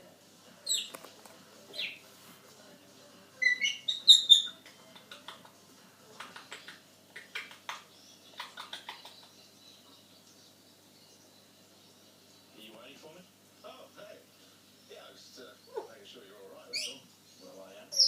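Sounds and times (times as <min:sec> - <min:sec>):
parrot chirping and whistling: 0:03.4 - 0:04.6, 0:16.7 - 0:17.0.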